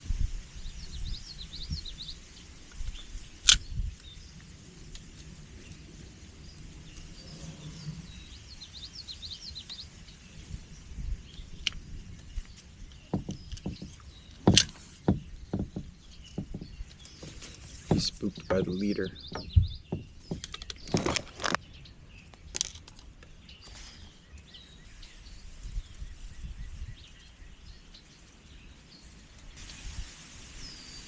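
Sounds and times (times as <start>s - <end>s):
small birds chirping: 0.4s - 31.0s
knocks: 13.1s - 21.2s.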